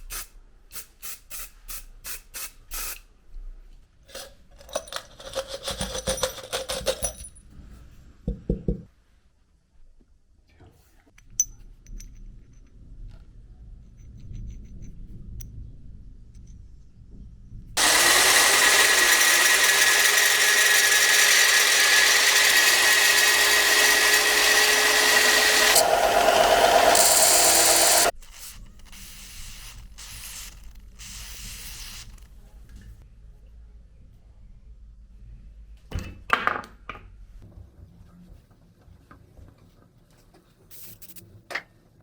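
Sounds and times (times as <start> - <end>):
electric power tool running: 17.8 - 28.1.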